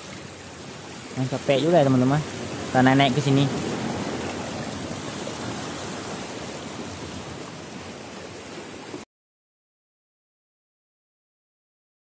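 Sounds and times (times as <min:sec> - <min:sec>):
sea water splashing among rocks: 0:00.0 - 0:09.0.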